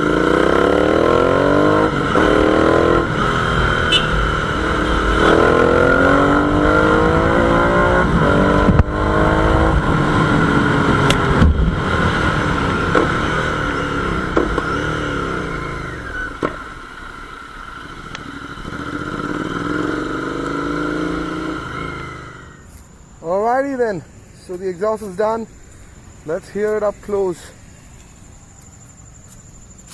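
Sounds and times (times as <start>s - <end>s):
motorcycle engine revving: 0.0s - 22.7s.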